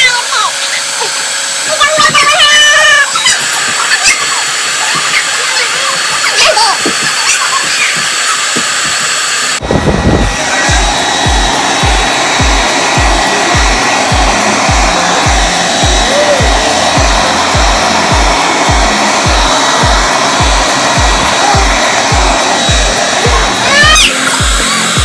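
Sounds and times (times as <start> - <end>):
hair dryer blowing: 0.0 - 25.0
music with heavy bass beat: 9.6 - 25.0.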